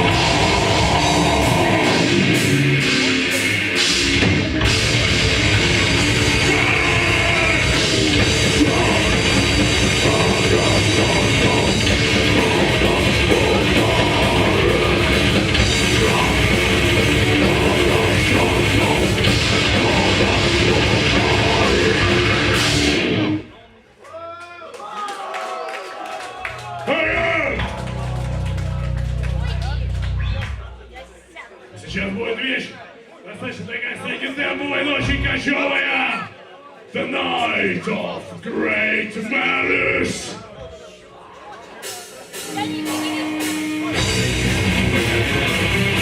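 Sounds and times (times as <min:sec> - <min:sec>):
death metal band playing: 0:00.0 - 0:23.5, 0:27.0 - 0:30.6, 0:41.8 - 0:46.0.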